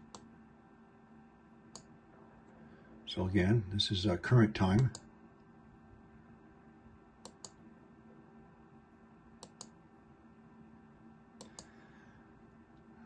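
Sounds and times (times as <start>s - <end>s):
computer mouse clicking: 0.0s - 0.3s, 7.2s - 7.6s, 9.4s - 9.8s, 11.4s - 11.8s
faint steady hum: 0.0s - 13.0s.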